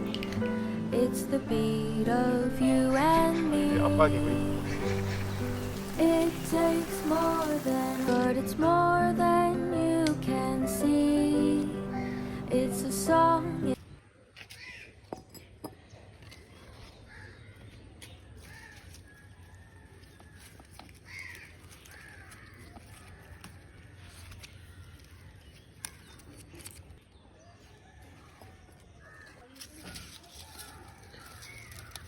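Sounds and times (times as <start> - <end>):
crows cawing: 4.2 - 6.0, 11.9 - 12.4, 21.1 - 23.2.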